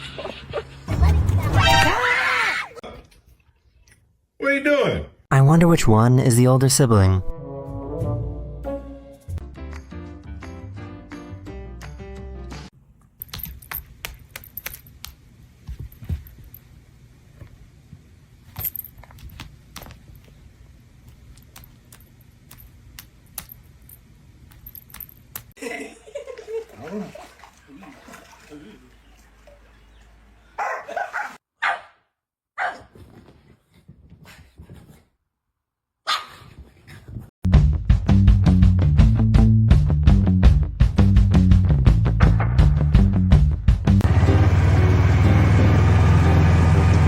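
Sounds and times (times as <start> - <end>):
dog barking: 30.6 - 32.0, 32.6 - 32.9, 36.0 - 36.4.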